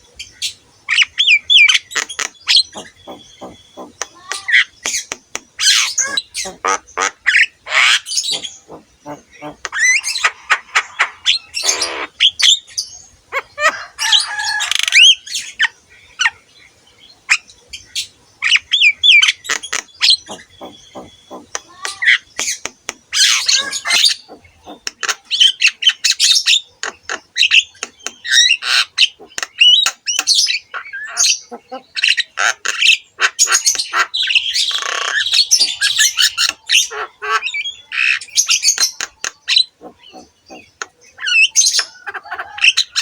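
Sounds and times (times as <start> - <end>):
harsh raspy bird squawks: 2.0 - 4.8, 5.6 - 12.3, 19.2 - 22.3, 23.1 - 25.6, 30.2 - 38.2, 39.1 - 43.0
bird singing clicks and whistles: 19.5 - 25.2, 26.8 - 30.4.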